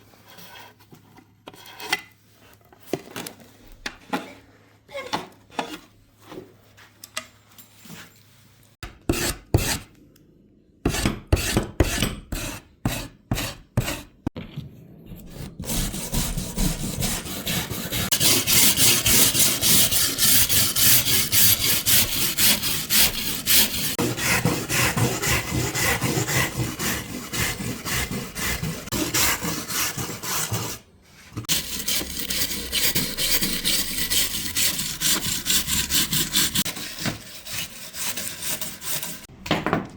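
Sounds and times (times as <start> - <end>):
hand tool strokes on wood: 15.7 - 39.3.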